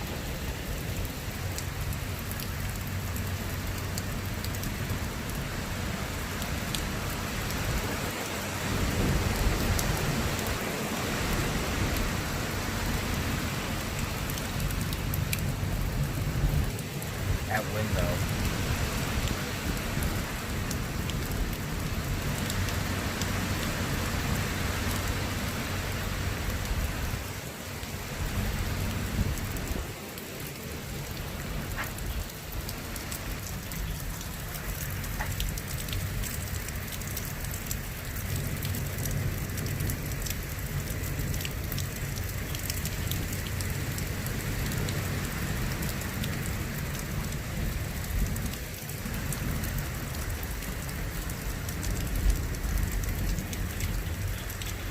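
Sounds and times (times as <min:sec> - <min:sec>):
raindrops ticking close by: 0:00.0 - 0:54.9
steady rain falling: 0:00.0 - 0:54.9.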